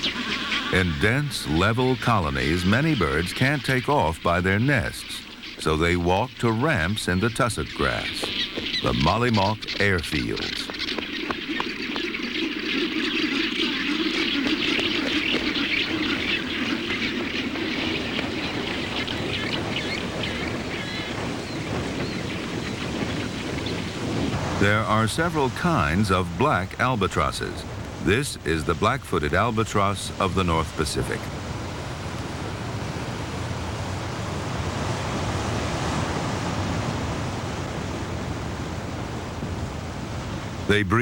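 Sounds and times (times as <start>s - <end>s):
seabird calls: 0.0s - 41.0s
surf: 0.0s - 41.0s
wind: 0.0s - 41.0s.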